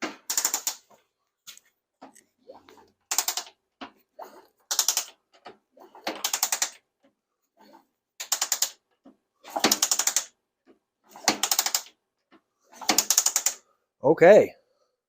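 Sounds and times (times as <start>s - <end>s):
kick-starter ratchety clicking: 3.1s - 3.5s, 4.7s - 5.1s, 6.1s - 6.8s, 8.2s - 8.8s, 9.6s - 10.3s, 11.3s - 11.9s, 12.8s - 13.6s.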